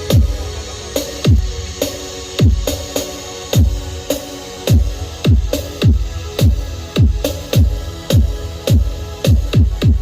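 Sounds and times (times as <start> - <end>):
deep bass: 0.0 - 10.0
electronic dance music: 0.0 - 10.0
heavy kick drums: 2.4 - 2.7, 4.7 - 10.0.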